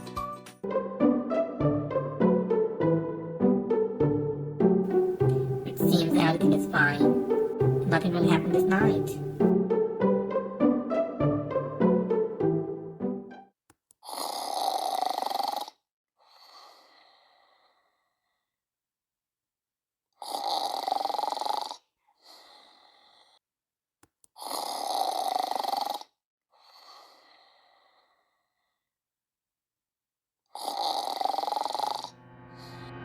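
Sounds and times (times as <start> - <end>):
person snoring: 14.0 - 18.5, 20.2 - 23.4, 24.4 - 28.6, 30.5 - 33.0.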